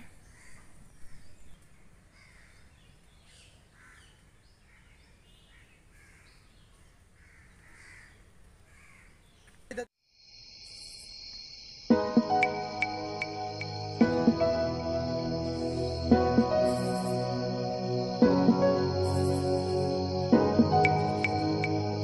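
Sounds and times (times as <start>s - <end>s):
birds calling: 0.0s - 9.7s
soft synthesised background music: 11.9s - 22.0s.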